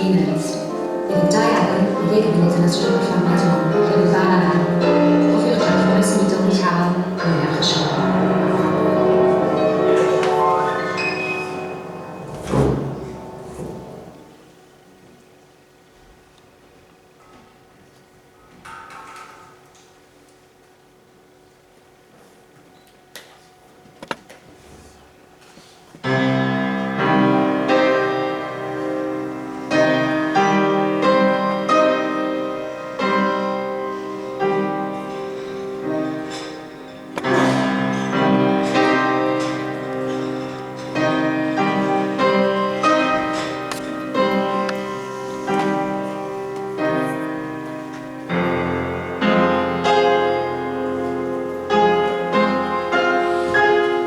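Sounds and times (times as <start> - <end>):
solo piano classical piece: 0.0 - 14.9, 26.0 - 54.0.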